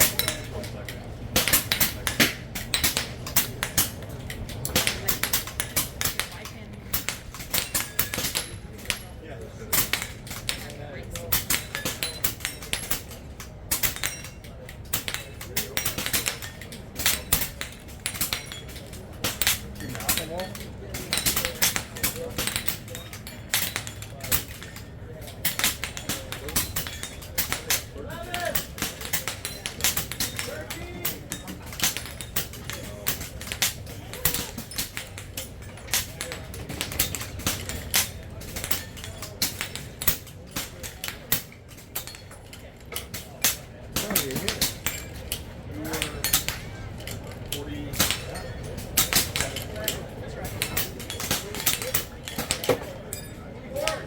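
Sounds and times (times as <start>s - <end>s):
air rifles firing: 0.0s - 54.0s
pellets pinging on steel targets: 0.0s - 54.0s.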